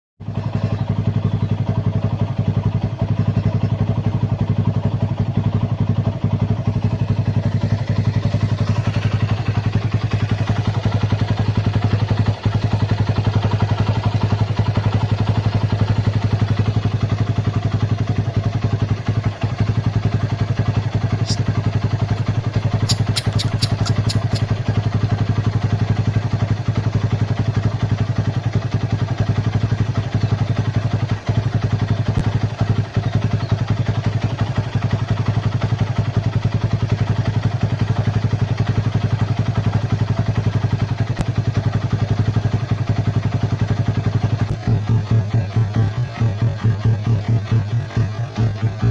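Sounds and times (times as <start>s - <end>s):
high squeaks: 22.7s - 24.6s.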